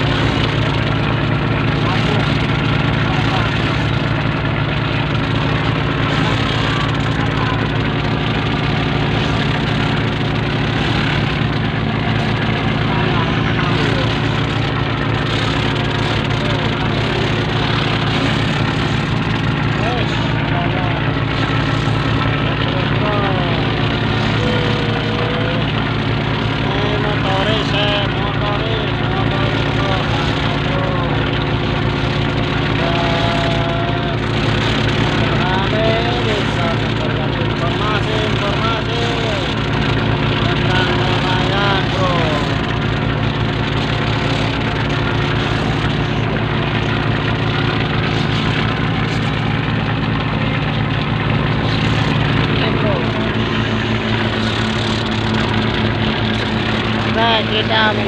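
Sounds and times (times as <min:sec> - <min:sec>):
faint voices: 0:00.0 - 0:31.9, 0:47.6 - 0:56.2
boat engine droning: 0:00.0 - 0:58.0
water wash: 0:00.0 - 0:58.0.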